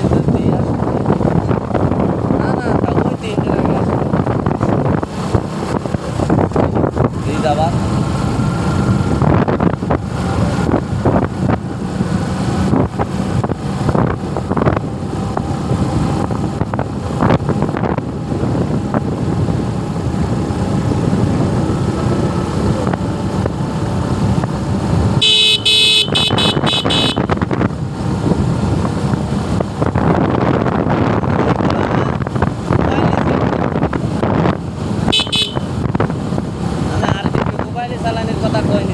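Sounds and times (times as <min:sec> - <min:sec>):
motorcycle road and wind noise: 0:00.0 - 0:38.9
vehicle horn: 0:25.2 - 0:27.4, 0:35.1 - 0:35.7.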